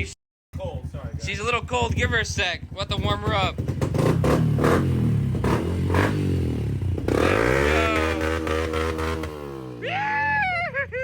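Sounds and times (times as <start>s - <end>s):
dirt bike engine revving: 0.6s - 10.2s.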